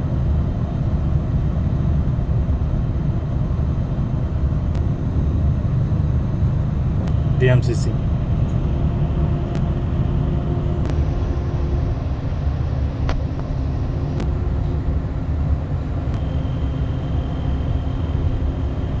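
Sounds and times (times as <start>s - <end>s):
train rumbling in motion: 0.0s - 19.0s
faint whining tones: 4.7s - 19.0s.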